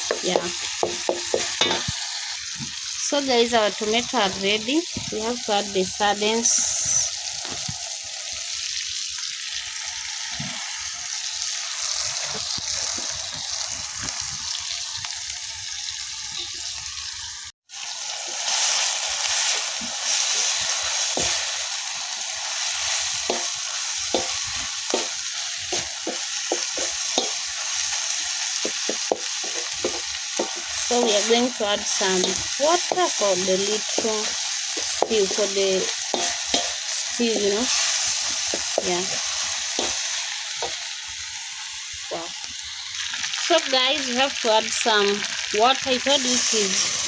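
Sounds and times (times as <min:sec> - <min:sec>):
fish and tomatoes sizzling in pan: 0:00.0 - 0:47.0.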